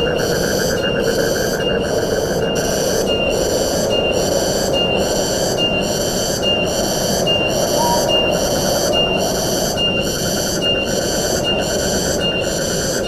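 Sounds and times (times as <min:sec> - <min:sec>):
wind through forest: 0:00.0 - 0:13.0
high buzzy call: 0:07.3 - 0:09.6
short whistled note: 0:07.7 - 0:09.2.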